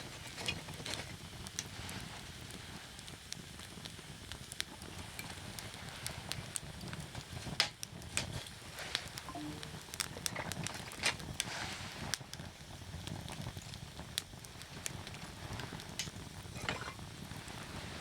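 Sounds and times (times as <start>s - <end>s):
flames rushing: 0.0s - 9.2s, 10.0s - 18.0s
firewood popping and snapping: 13.2s - 17.6s.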